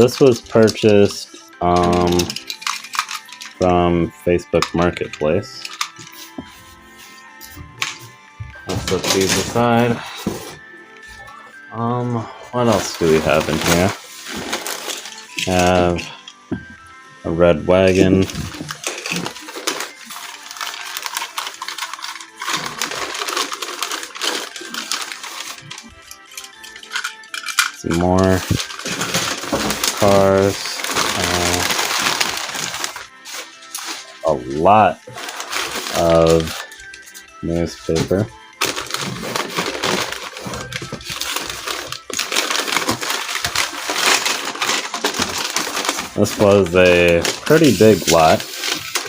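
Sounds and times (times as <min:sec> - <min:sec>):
plastic toy train cars clattering: 0:00.0 - 0:03.6, 0:04.6 - 0:06.0, 0:18.5 - 0:25.8, 0:26.4 - 0:33.0, 0:38.6 - 0:49.0
newspaper crumpling and crackling: 0:00.0 - 0:08.0, 0:08.6 - 0:10.7, 0:12.2 - 0:16.2, 0:17.8 - 0:49.0.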